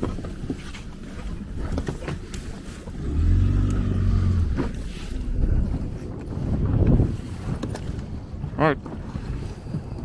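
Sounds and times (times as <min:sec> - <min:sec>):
small boat motor running: 0:02.8 - 0:05.4.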